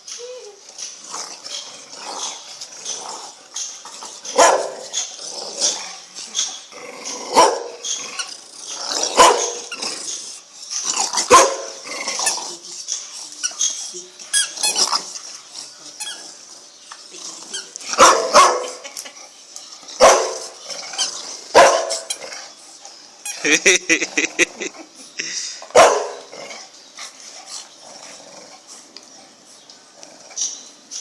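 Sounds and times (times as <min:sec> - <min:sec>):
puppies barking: 0:09.2 - 0:09.8, 0:11.2 - 0:11.8, 0:18.0 - 0:18.9, 0:25.8 - 0:26.3.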